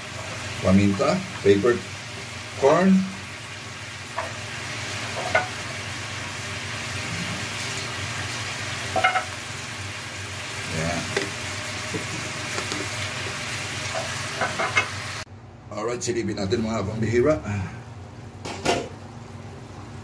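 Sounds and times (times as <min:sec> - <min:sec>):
chicken wings sizzling in a pot: 0:00.0 - 0:15.3.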